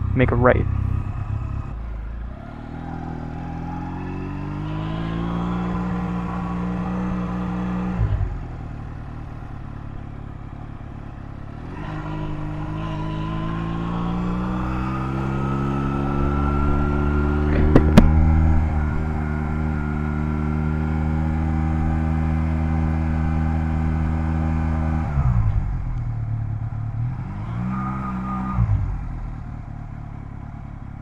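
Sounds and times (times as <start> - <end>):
motorcycle engine revving: 0.0 - 31.0
engine thump: 15.6 - 20.1.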